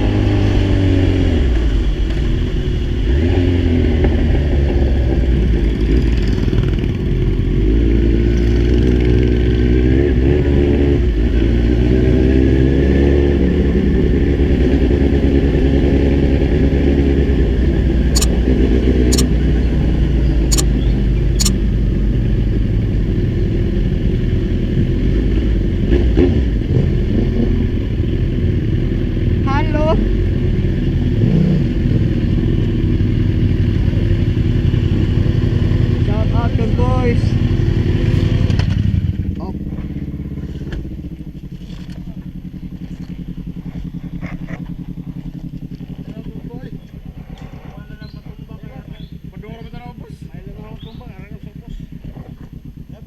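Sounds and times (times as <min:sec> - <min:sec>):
motorcycle engine running: 0:18.2 - 0:18.4, 0:26.4 - 0:53.0
sharp clicks: 0:20.5 - 0:20.7.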